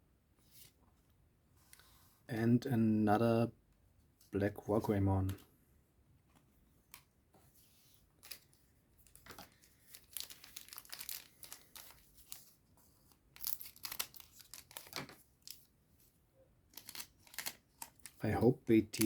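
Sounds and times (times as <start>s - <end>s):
foil wrapper crinkling and tearing: 9.8s - 12.5s, 13.3s - 15.7s, 16.7s - 18.2s.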